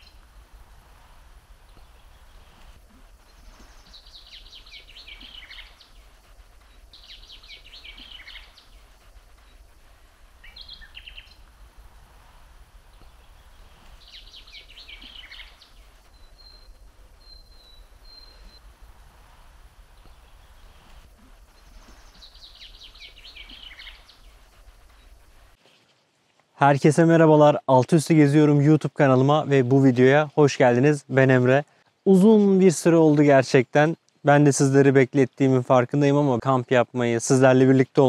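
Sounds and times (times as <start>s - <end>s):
low steady rumble: 0.0s - 25.6s
songbird singing: 0.0s - 26.1s.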